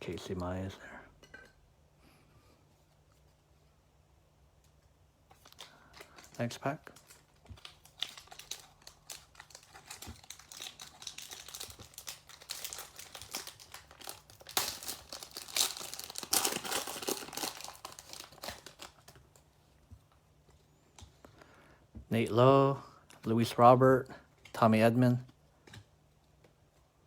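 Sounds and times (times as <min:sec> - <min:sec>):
wrapper being torn and crinkled: 0:05.3 - 0:19.4.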